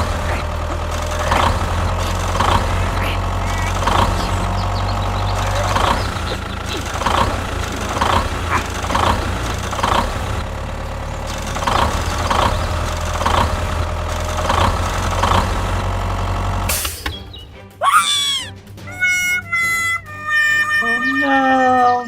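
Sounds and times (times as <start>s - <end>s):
tractor engine running: 0.0s - 16.7s.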